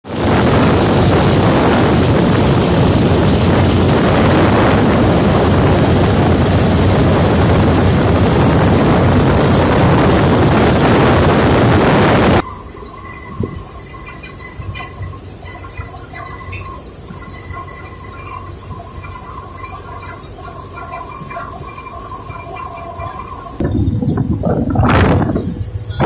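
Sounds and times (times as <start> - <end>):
wind blasting microphone: 0.0 - 12.4, 22.7 - 26.0
boat engine running: 0.0 - 26.0.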